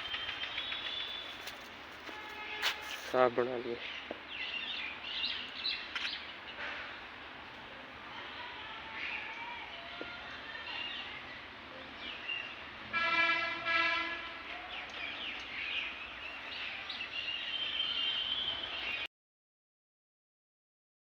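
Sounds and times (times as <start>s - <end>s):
birds chirping: 0.0s - 12.8s, 13.9s - 19.1s
horn steady flat note: 2.0s - 3.1s, 12.9s - 14.4s.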